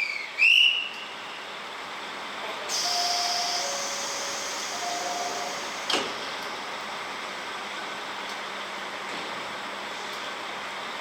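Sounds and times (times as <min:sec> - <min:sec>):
train whistle blast: 0:02.7 - 0:05.7.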